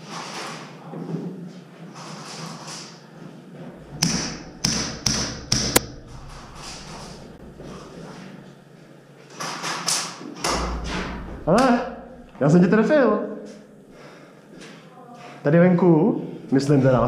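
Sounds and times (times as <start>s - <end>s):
sharp airsoft gunshots: 4.0s - 6.2s.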